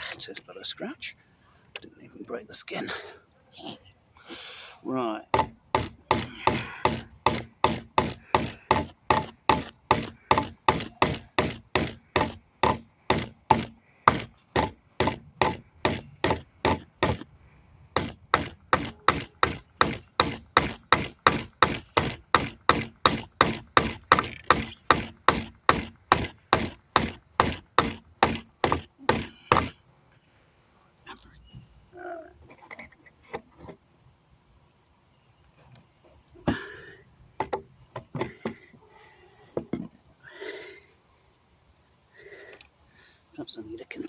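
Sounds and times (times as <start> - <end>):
hammer striking wooden plank: 5.3 - 17.3, 18.0 - 29.8.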